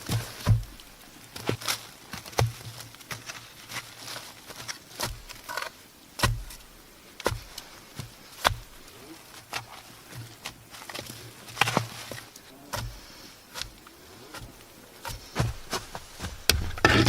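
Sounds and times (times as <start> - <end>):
sharp knocks with dull thuds: 0.0 - 1.6, 2.2 - 2.8, 4.9 - 8.9, 12.7 - 17.0.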